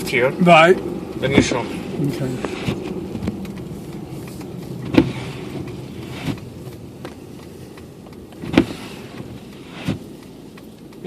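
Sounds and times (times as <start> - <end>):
car engine and tyres rumbling: 0.0 - 11.0
sharp knocks: 4.8 - 6.4.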